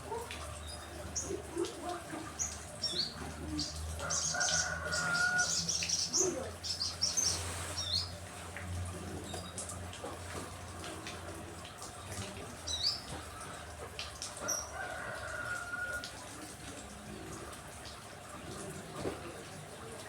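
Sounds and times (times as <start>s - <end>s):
songbirds chirping: 0.0s - 15.3s.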